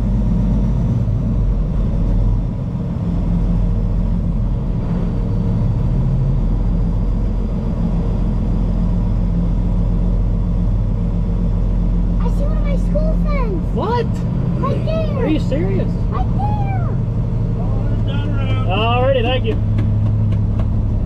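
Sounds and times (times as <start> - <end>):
vehicle engine low rumble: 0.0 - 21.0.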